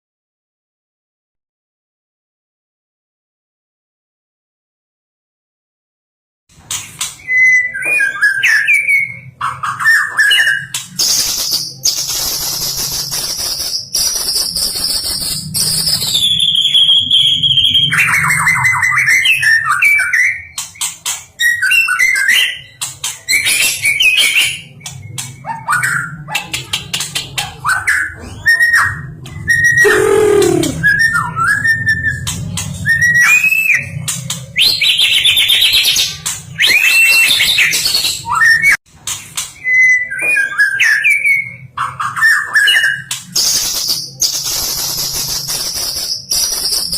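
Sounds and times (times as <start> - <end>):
bird singing whistles and trills: 7.2 - 20.6, 27.7 - 32.2, 36.6 - 38.8.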